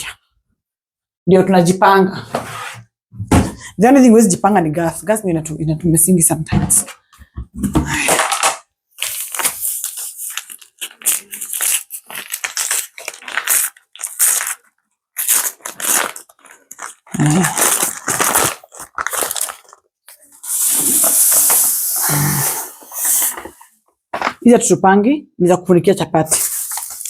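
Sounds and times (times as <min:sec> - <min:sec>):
plastic packaging crinkling: 0:08.1 - 0:21.7, 0:26.3 - 0:27.0.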